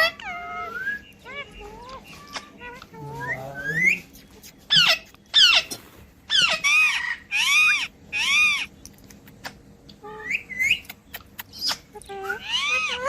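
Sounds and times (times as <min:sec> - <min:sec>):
parrot squawking: 0:00.0 - 0:04.0, 0:04.7 - 0:08.7, 0:11.5 - 0:13.0.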